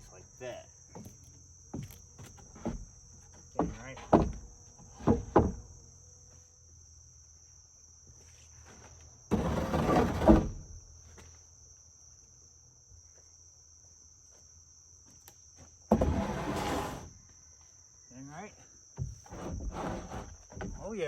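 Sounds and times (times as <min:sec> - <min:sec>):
insects droning: 0:00.0 - 0:21.0
wooden board scraping: 0:01.8 - 0:05.6, 0:08.7 - 0:10.7, 0:15.9 - 0:17.1, 0:19.0 - 0:21.0
board thud: 0:03.6 - 0:05.6, 0:15.9 - 0:17.1.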